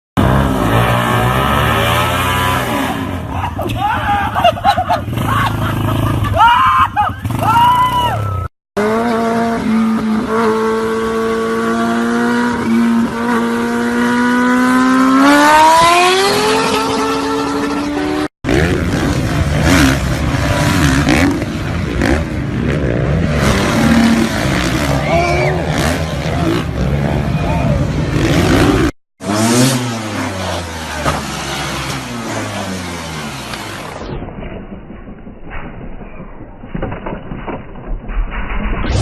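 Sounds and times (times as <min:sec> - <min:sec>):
vehicle engine running and revving: 0:00.2 - 0:03.3, 0:08.8 - 0:34.2.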